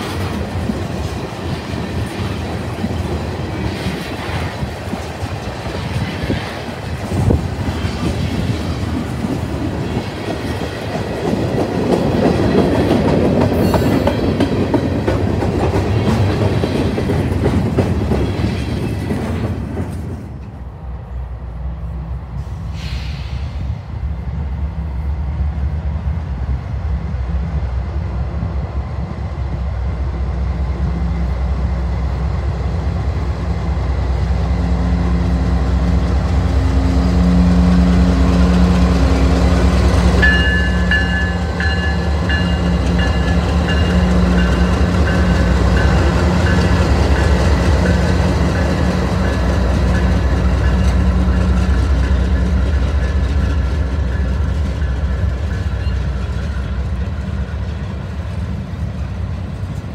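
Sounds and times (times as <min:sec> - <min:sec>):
wheels rumbling on rails: 0:00.0 - 0:59.9
locomotive engine drone: 0:20.1 - 0:59.9
high ringing tone: 0:40.2 - 0:46.8.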